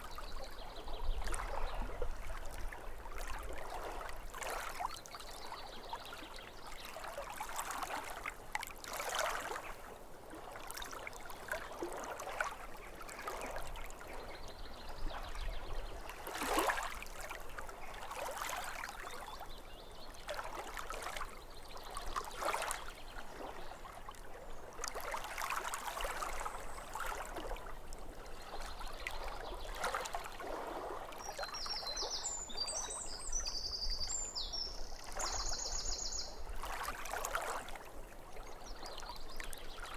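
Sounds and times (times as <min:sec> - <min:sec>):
water lapping at shore: 0:00.0 - 0:39.9
bird chirping: 0:31.5 - 0:36.4.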